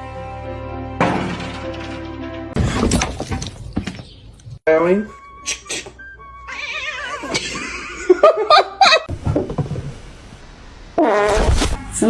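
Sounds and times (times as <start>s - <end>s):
cat meowing: 6.5s - 7.2s.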